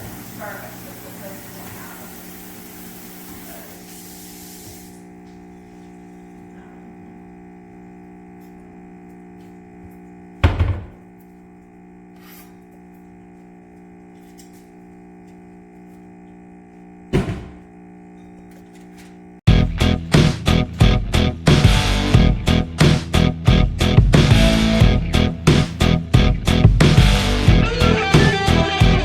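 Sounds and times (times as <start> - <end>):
steady low hum: 4.9 - 27.6
heavy thunks: 10.4 - 11.0
guitar music: 19.5 - 29.0.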